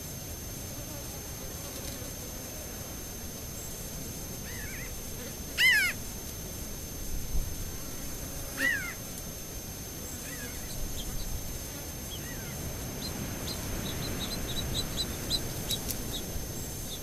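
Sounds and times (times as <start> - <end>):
bird calling: 4.4 - 5.0, 5.6 - 6.0, 8.6 - 9.0, 10.1 - 11.3, 12.1 - 17.0.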